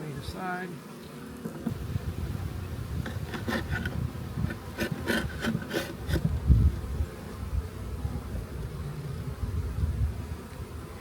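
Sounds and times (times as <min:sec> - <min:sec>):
honey bees buzzing: 0:00.6 - 0:11.0
wooden frames scraping and knocking: 0:01.7 - 0:06.3.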